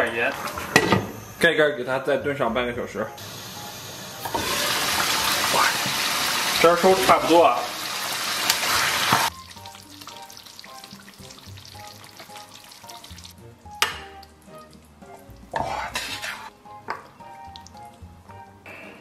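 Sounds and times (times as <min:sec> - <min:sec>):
pork sizzling in a wok: 0:00.0 - 0:01.5, 0:03.2 - 0:18.5
spatula scraping wok: 0:15.0 - 0:17.1.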